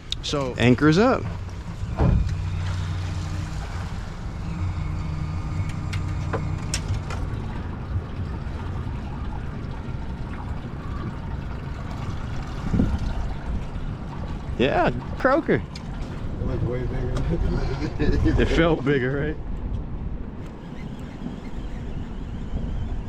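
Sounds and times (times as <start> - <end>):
boat motor humming: 0.0 - 23.0
water noise: 0.0 - 23.0
wind noise: 12.1 - 15.0, 15.9 - 23.0.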